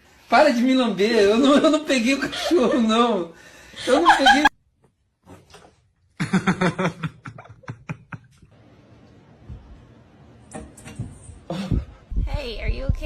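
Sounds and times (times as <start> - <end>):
person laughing: 3.8 - 4.5, 6.2 - 8.4.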